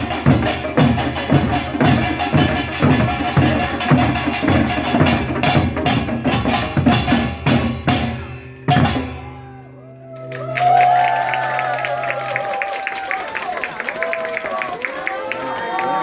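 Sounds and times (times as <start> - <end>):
drums beating fast: 0.0 - 9.3.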